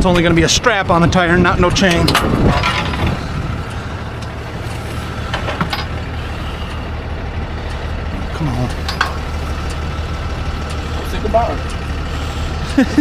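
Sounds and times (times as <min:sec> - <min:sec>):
truck engine idling: 0:00.0 - 0:13.0
knocks and clanks: 0:01.0 - 0:07.0, 0:08.7 - 0:09.4.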